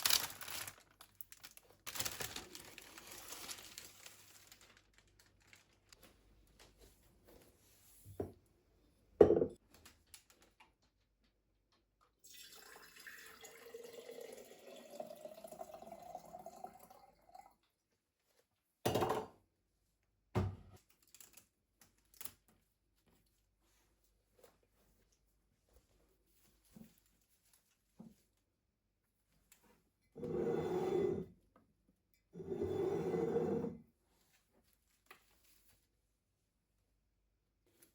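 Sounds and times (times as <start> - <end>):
tap water filling a vessel: 12.3 - 17.5.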